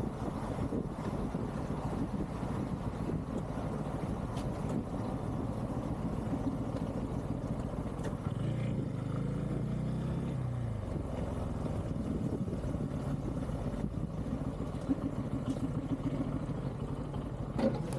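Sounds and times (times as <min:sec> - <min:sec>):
wind noise: 0:00.0 - 0:05.2, 0:11.8 - 0:14.5
motorcycle engine rumble: 0:00.0 - 0:17.9.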